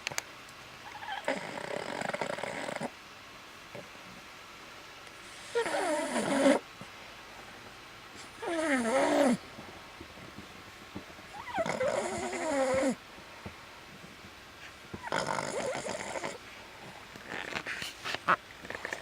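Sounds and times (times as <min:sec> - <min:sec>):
dog snoring: 0:00.8 - 0:02.9, 0:05.3 - 0:06.6, 0:08.2 - 0:09.4, 0:11.4 - 0:13.0, 0:14.9 - 0:17.7.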